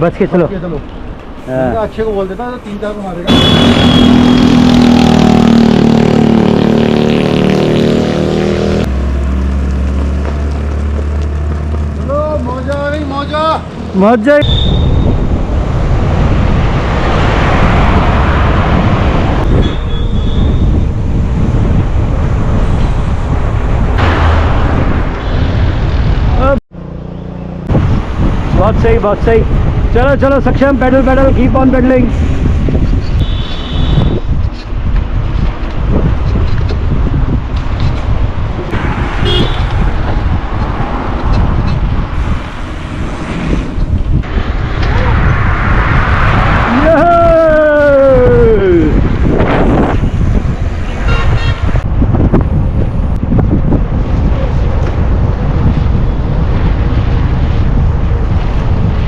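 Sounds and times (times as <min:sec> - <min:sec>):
road noise: 0:00.0 - 0:59.0
short horn toot: 0:03.3 - 0:04.6, 0:33.2 - 0:34.2, 0:39.2 - 0:39.7, 0:50.9 - 0:51.7
wind buffeting microphone: 0:09.7 - 0:26.6, 0:27.6 - 0:59.0.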